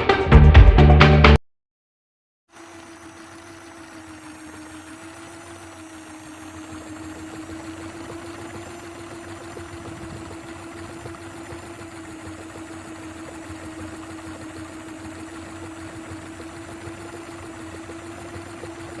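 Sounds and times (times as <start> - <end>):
small motor whining: 2.5 - 19.0.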